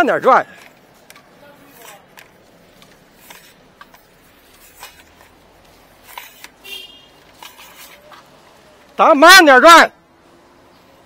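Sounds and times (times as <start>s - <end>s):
cable handled by hand: 0.4s - 9.0s.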